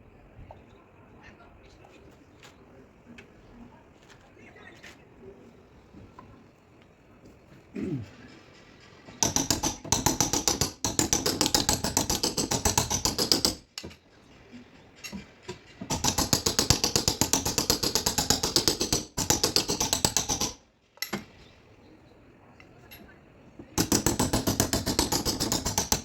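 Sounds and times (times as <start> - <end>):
tapping on sheet metal: 9.1 - 14.0.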